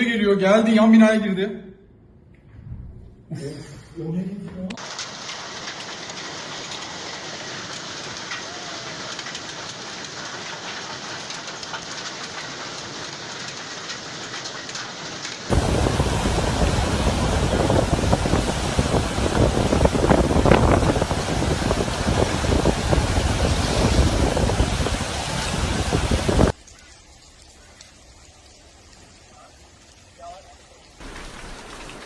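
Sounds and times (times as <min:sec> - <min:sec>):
hail and rain pounding: 0:04.8 - 0:26.6, 0:29.6 - 0:32.0.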